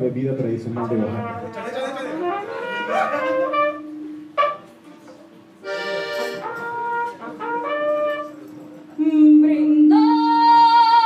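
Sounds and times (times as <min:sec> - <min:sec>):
live instrumental music: 0:00.7 - 0:09.2.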